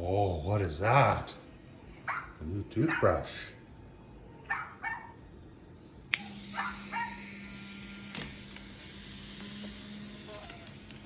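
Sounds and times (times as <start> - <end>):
low electric buzz with hiss: 5.4 - 11.0.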